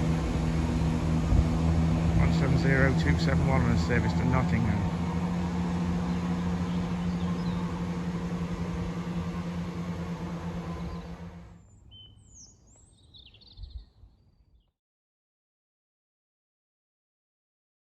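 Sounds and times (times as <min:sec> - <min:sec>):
train engine drone: 0:00.0 - 0:11.9
faint bird chirps: 0:11.6 - 0:14.7.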